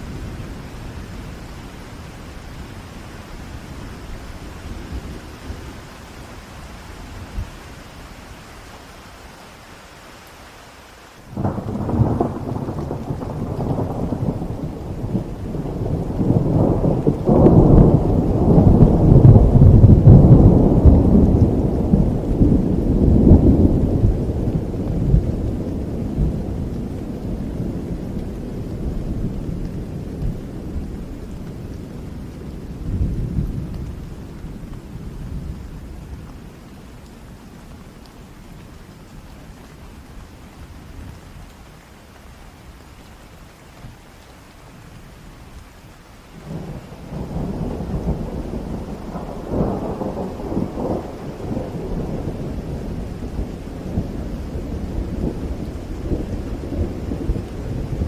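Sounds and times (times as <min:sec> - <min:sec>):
steady rain: 0:00.0 - 0:58.0
thunder rolling: 0:11.4 - 0:28.0, 0:46.5 - 0:58.0.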